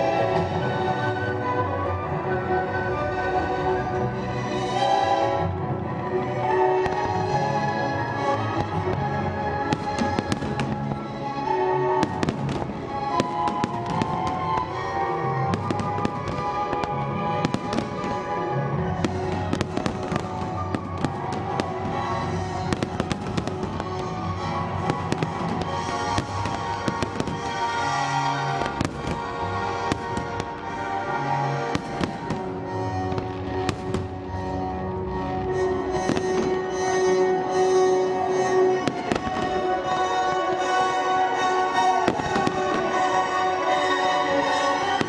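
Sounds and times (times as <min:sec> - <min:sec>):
music soundtrack: 0:00.0 - 0:45.0
firework bangs and crackles: 0:08.2 - 0:36.9, 0:38.5 - 0:45.0.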